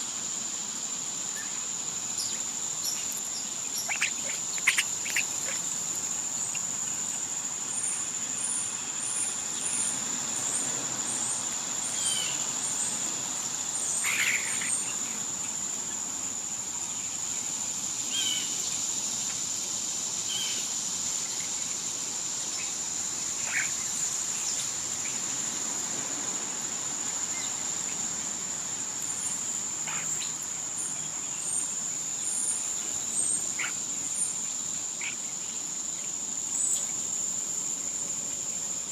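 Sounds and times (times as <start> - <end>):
insects droning: 0.0 - 38.9
bird chirps and calls: 2.2 - 5.6.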